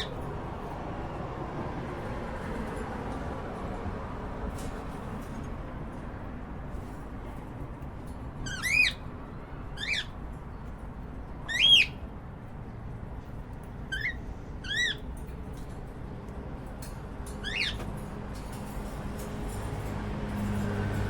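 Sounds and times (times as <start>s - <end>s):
cockatiel chirping: 11.5s - 12.0s.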